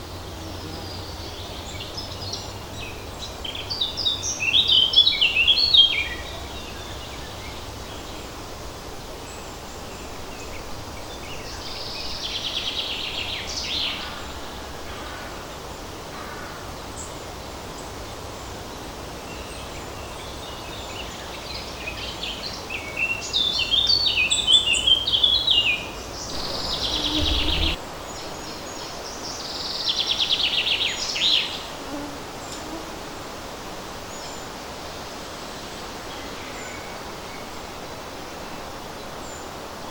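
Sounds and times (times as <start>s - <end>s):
songbirds singing: 0.0s - 31.8s
wind rustling trees: 0.0s - 39.9s.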